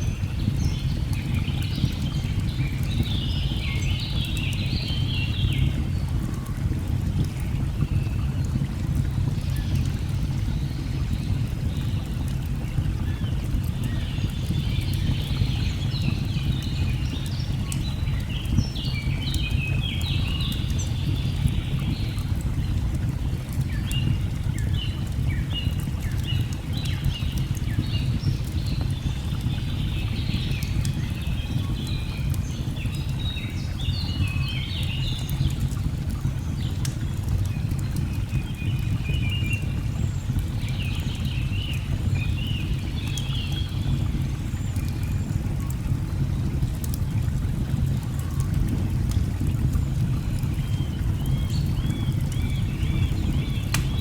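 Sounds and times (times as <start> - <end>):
wood fire crackling: 10.7 - 54.0
birds chirping and warbling: 50.1 - 54.0
falling water rushing: 52.3 - 54.0.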